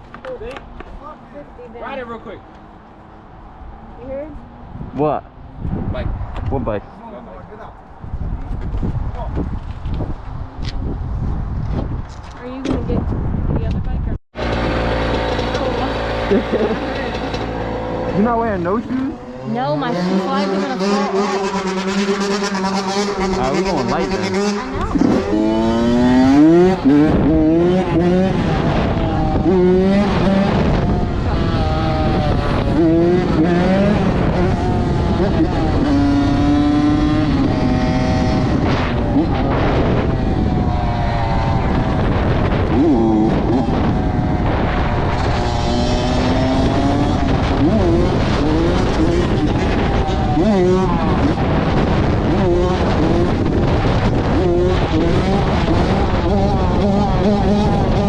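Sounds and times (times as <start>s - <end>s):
dirt bike engine revving: 14.4s - 58.0s.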